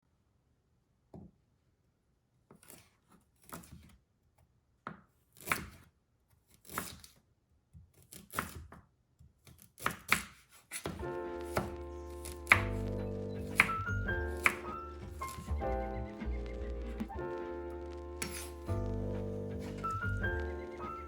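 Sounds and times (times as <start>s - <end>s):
food cutting or tearing strokes: 16.4s - 21.0s.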